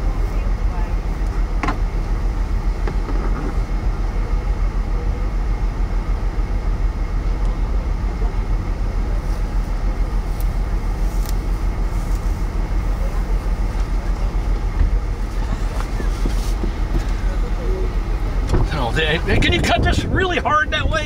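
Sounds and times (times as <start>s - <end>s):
wind buffeting microphone: 5.5s - 21.0s.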